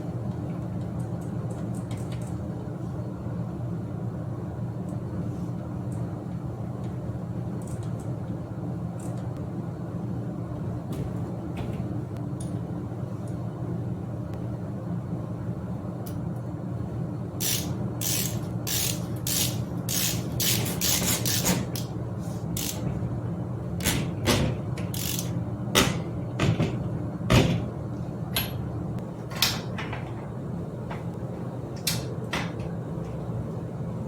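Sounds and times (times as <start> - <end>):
steady low hum: 0.0 - 34.0
metal bicycle parts clicking: 17.4 - 21.9, 22.6 - 22.8, 24.9 - 25.3.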